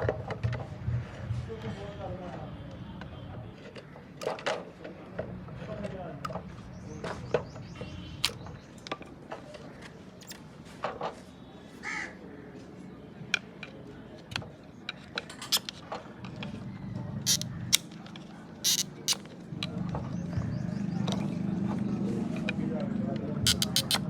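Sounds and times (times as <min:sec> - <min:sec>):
crow cawing: 0:11.8 - 0:12.2
hand tools clicking and knocking: 0:14.9 - 0:16.4, 0:17.3 - 0:19.3, 0:23.2 - 0:24.0.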